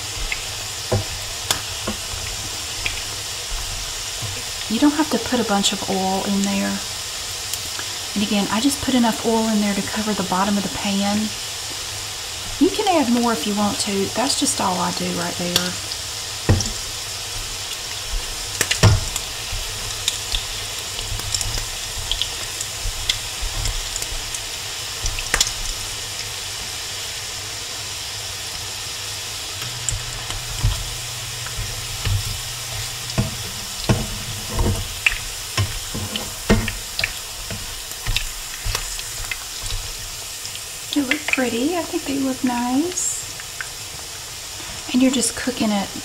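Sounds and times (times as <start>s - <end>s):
spatula tapping a pan: 0.0s - 4.6s, 16.4s - 24.4s, 29.8s - 40.0s
patties sizzling in oil: 0.0s - 46.0s.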